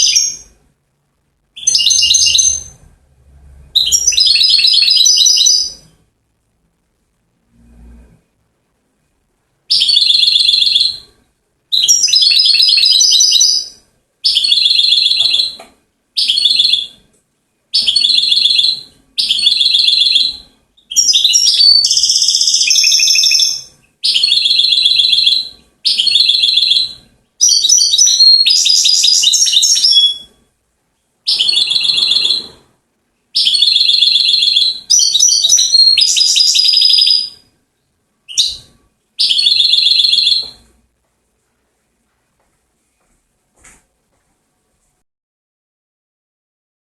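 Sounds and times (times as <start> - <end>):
goldfinch trilling song: 1.6 - 2.8, 17.8 - 30.3, 33.4 - 37.4, 38.3 - 40.5.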